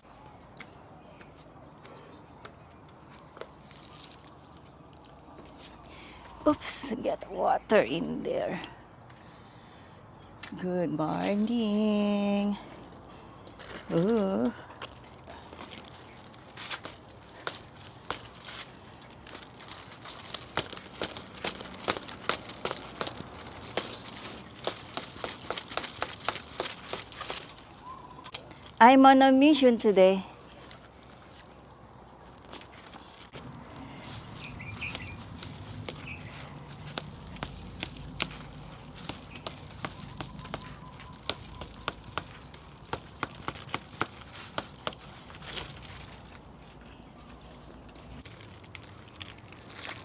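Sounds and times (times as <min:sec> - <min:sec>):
dry stalks snapping and clicking: 0:02.4 - 0:06.0, 0:12.9 - 0:28.8, 0:32.2 - 0:46.9.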